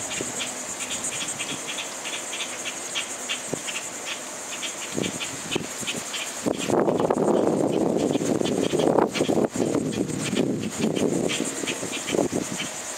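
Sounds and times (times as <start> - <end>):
insect chorus buzzing and chirping: 0.0 - 12.9.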